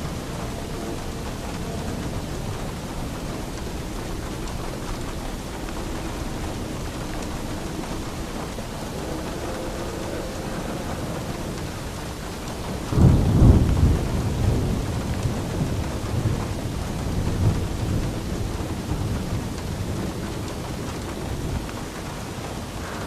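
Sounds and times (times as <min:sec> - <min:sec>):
steady rain: 0:00.0 - 0:23.0
thunder rolling: 0:00.0 - 0:23.0.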